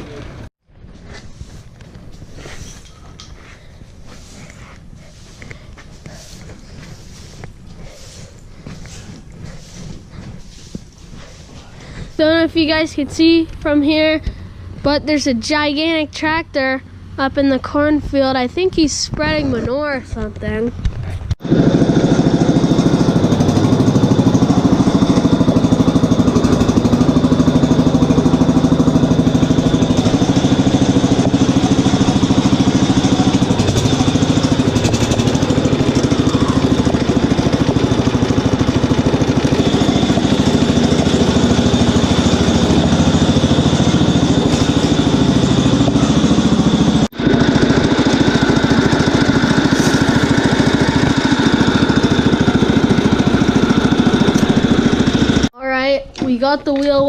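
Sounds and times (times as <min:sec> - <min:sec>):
tractor engine running: 0:21.4 - 0:55.6.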